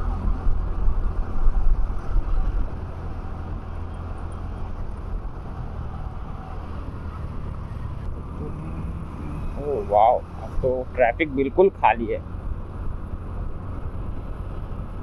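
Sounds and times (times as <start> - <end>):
wind rumble on microphone: 0.0 - 9.6.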